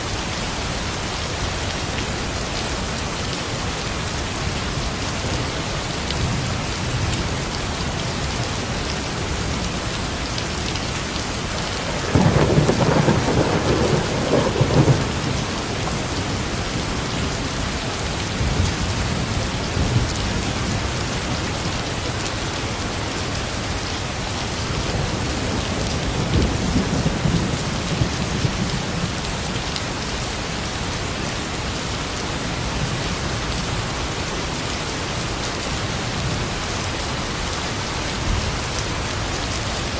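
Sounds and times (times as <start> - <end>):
steady rain falling: 0.0 - 39.9
thunder rumbling: 11.8 - 17.4.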